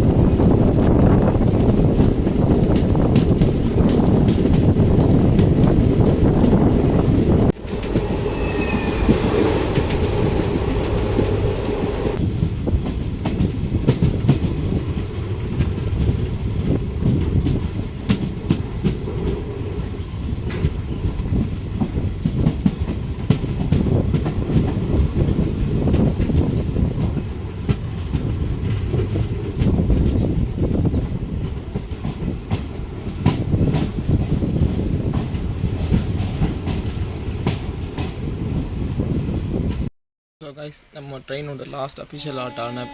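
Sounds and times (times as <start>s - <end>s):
train carriage rumble: 0.0s - 39.9s
wheels clicking over rail joints: 1.5s - 12.2s.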